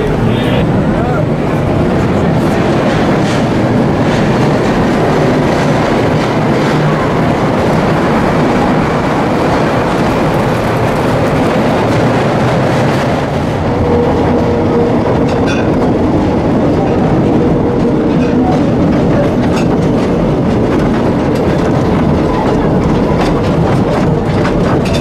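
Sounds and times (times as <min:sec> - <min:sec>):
train wheels clattering on track: 0:00.0 - 0:25.0.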